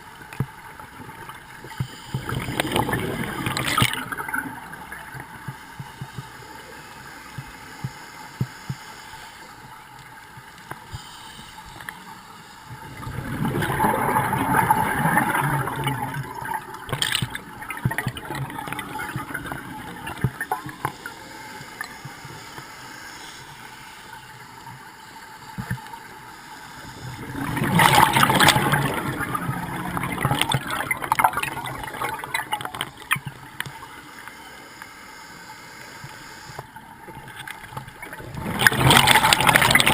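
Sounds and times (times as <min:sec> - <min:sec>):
diver's bubbles gurgling underwater: 0:01.8 - 0:06.3, 0:12.7 - 0:21.1, 0:27.1 - 0:33.4, 0:37.2 - 0:39.9.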